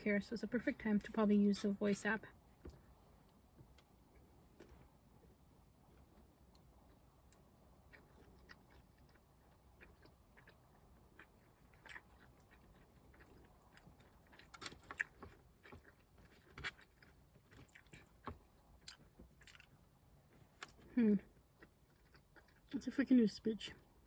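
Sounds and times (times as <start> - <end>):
chewing with wet clicks: 5.9 - 22.8.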